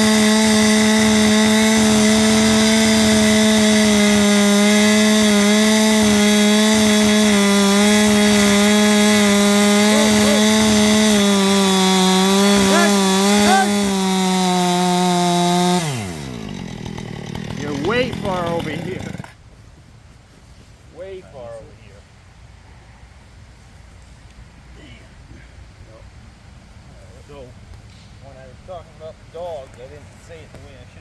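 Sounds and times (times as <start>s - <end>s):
chainsaw cutting at high revs: 0.0s - 19.4s.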